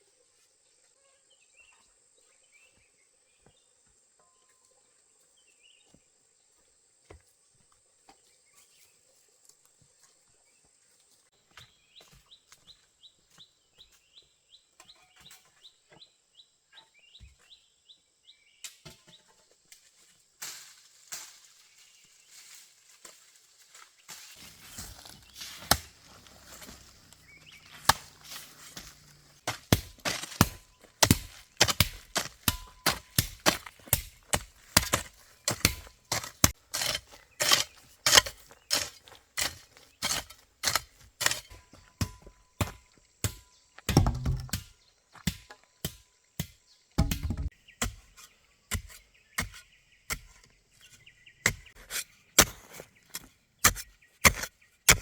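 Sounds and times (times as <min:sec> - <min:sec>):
blade chopping bamboo: 0:24.1 - 0:50.4, 0:51.5 - 0:55.0
heavy deep thuds: 0:43.9 - 0:44.6, 0:47.0 - 0:47.5.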